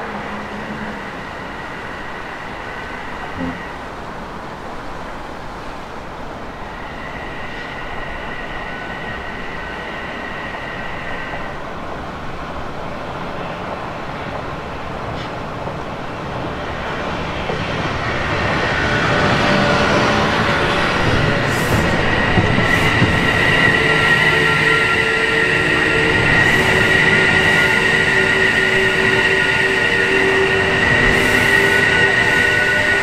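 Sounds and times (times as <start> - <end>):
electric train rumbling: 0.0 - 33.0.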